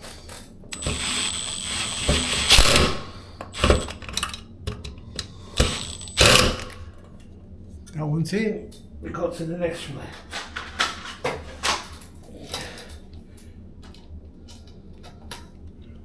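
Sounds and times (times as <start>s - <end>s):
drill motor whining: 0.7s - 4.2s, 5.5s - 6.9s
screw and fittings clicking: 0.8s - 4.4s, 5.6s - 6.9s.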